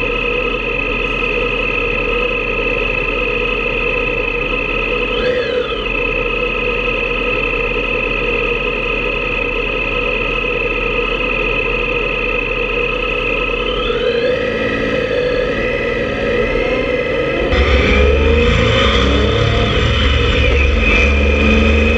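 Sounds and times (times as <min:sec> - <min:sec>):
motorcycle engine cruising: 0:13.0 - 0:21.9.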